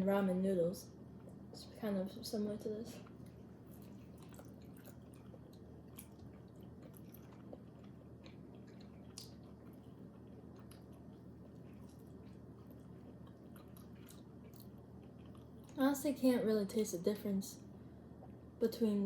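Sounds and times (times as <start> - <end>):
chewing soft food: 0.9 - 16.0, 17.6 - 18.6
wet mouth clicks: 3.8 - 10.0.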